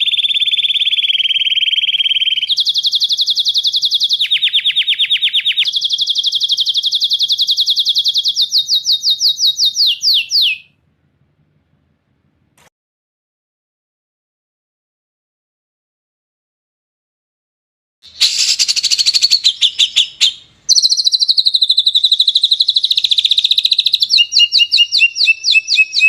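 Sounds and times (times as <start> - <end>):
songbird trills: 0.0 - 10.7, 18.1 - 26.0.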